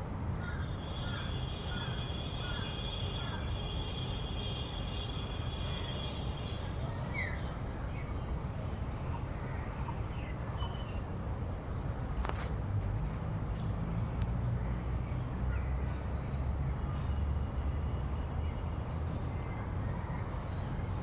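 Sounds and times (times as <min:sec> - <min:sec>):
high-pitched insect chorus: 0:00.1 - 0:21.0
faint bird chirps: 0:09.1 - 0:11.1.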